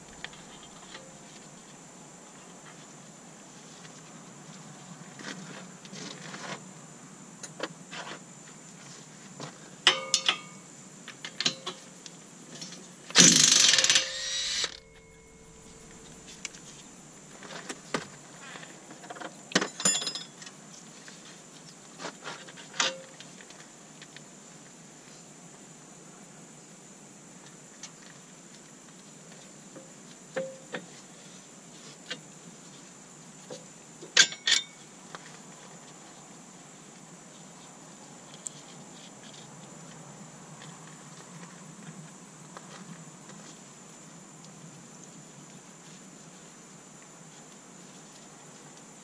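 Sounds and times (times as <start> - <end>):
metal clinks of tools and bolts: 9.9 - 10.6, 13.2 - 16.8, 19.7 - 20.4
impact wrench hammering: 13.2 - 16.6.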